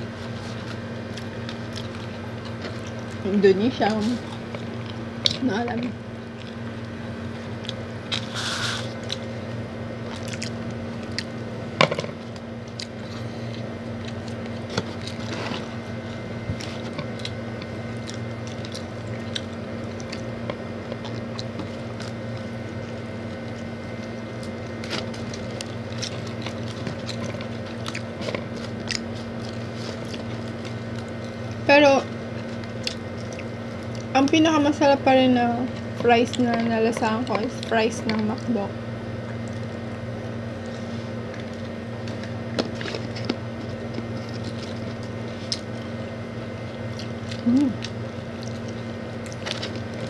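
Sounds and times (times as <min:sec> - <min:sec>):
biting and chewing: 0:00.0 - 0:05.4, 0:06.0 - 0:34.4, 0:35.7 - 0:50.0
steady low hum: 0:00.0 - 0:50.0.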